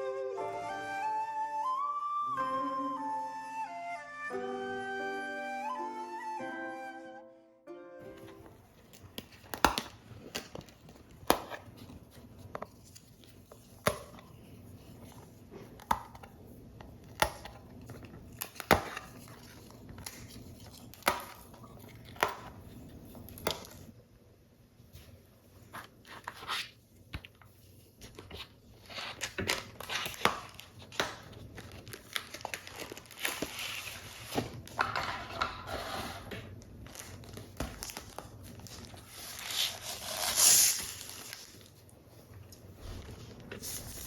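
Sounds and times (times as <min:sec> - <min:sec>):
paper rustling: 0:08.2 - 0:15.8, 0:25.0 - 0:44.0.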